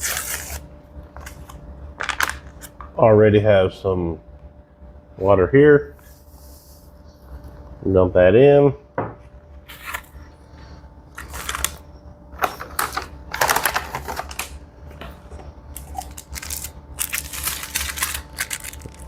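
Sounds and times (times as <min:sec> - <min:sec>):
plastic packet crinkling: 0:12.4 - 0:14.6, 0:15.7 - 0:19.0.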